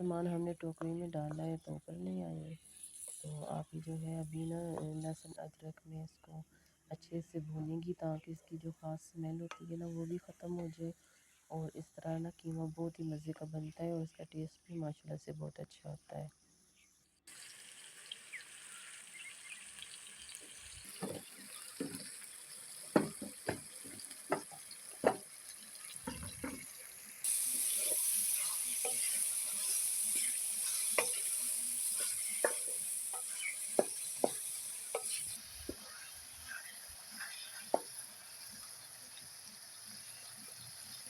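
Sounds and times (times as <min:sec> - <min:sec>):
meat sizzling in a pan: 0:02.6 - 0:03.4, 0:17.3 - 0:41.0
spoon scraping a pan: 0:02.6 - 0:03.6, 0:22.9 - 0:38.6.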